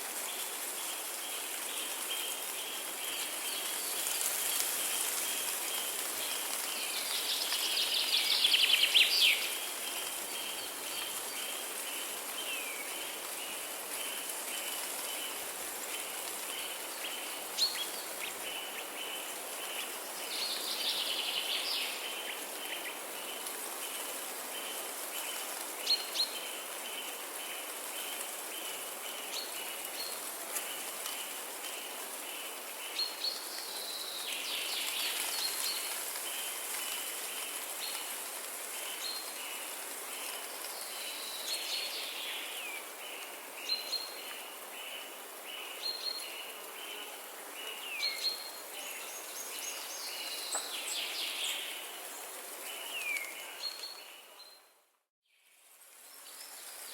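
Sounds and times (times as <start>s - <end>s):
steady hiss: 0.0s - 54.0s
songbird warbling song: 6.8s - 13.2s, 40.2s - 51.9s.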